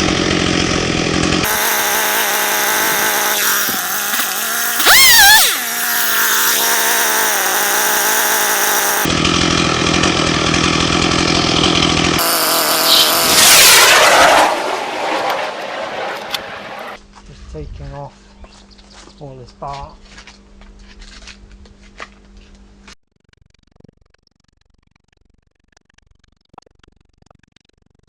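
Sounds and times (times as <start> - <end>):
chainsaw cutting wood: 0.0 - 15.4.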